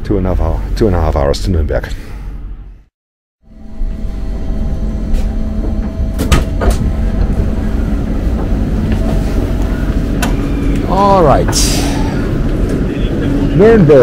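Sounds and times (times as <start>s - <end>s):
train carriage rumble and hum: 3.5s - 14.0s.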